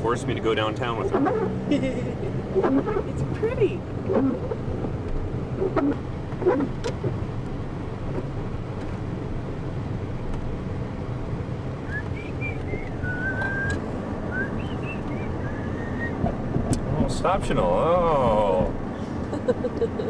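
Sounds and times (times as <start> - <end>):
car engine and road noise: 0.0 - 20.0
wavering high whistling tone: 11.9 - 16.3.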